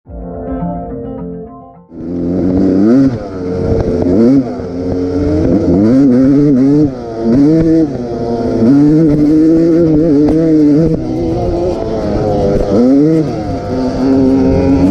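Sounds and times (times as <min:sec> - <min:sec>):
motorcycle engine revving: 0:01.9 - 0:14.9.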